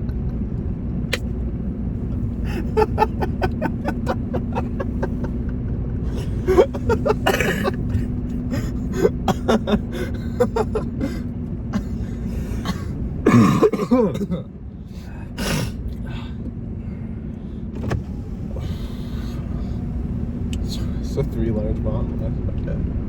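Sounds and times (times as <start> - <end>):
car engine idling: 1.1 - 22.4
person coughing: 2.3 - 5.4, 6.1 - 11.2, 11.8 - 14.5.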